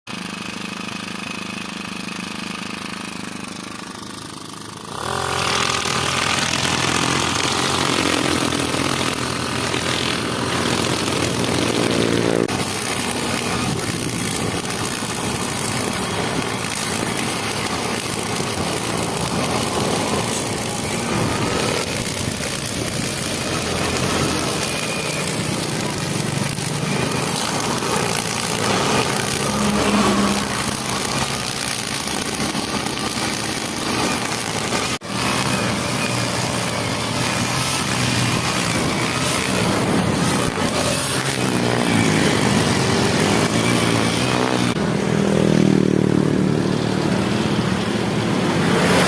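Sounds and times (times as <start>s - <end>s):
brush cutter engine running: 0.1s - 49.0s.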